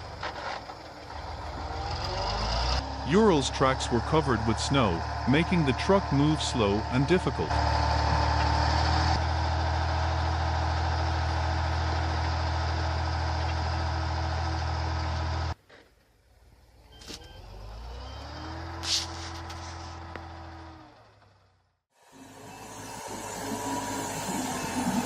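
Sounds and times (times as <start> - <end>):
truck engine running under load: 0.0 - 15.6, 16.9 - 25.0
quieter engine rising in pitch: 16.8 - 25.0.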